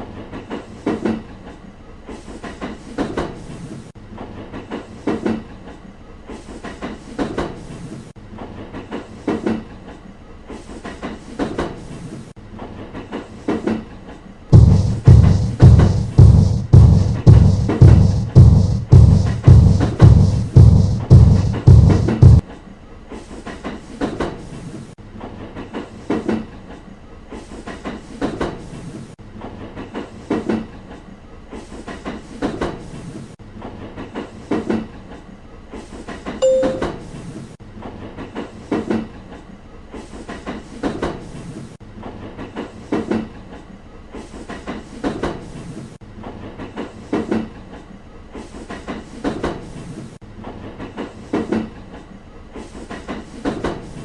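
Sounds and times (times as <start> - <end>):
short tone: 36.4 - 37.2
train wheels clattering over joints: 37.8 - 54.0.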